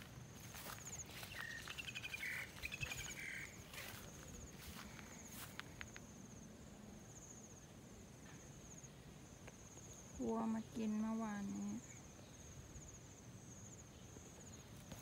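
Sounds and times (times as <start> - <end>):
soft footsteps: 0.0 - 6.0
high pulsing insect trill: 0.0 - 14.8
birds chirping: 0.5 - 4.8.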